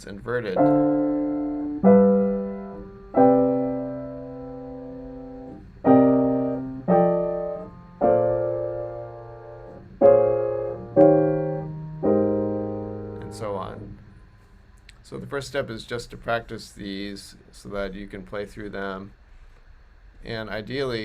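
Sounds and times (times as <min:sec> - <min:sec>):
piano jazz chords: 0:00.0 - 0:14.3.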